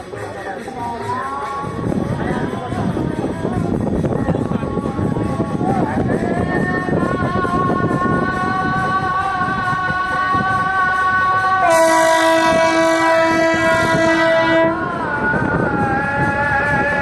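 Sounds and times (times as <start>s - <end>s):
train horn long blast: 10.5s - 15.1s.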